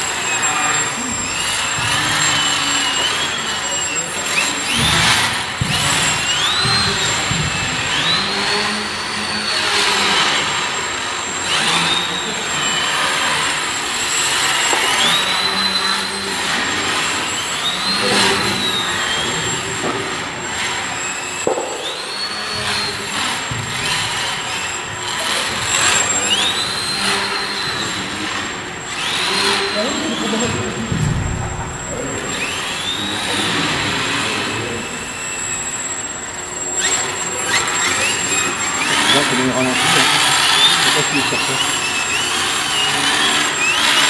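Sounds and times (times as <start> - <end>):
stepper motors whining: 0.0 - 44.0
steady high-pitched tone: 12.1 - 23.6.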